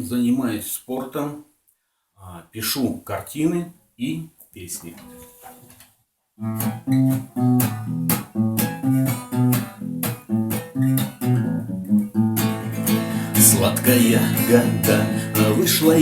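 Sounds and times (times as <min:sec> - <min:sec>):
guitar plucked notes: 0:04.9 - 0:05.6, 0:06.4 - 0:16.0.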